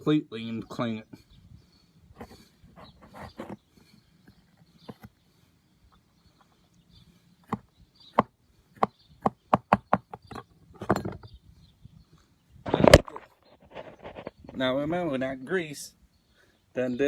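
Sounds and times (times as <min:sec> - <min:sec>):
sharp taps and knocks: 0:07.5 - 0:11.2
brief rustle: 0:12.7 - 0:14.6.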